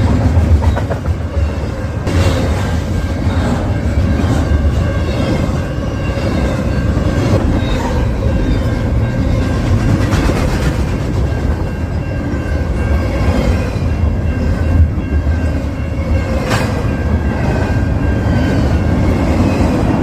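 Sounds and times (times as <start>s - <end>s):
train wheels clattering on rails: 0.0s - 1.4s, 2.1s - 20.0s.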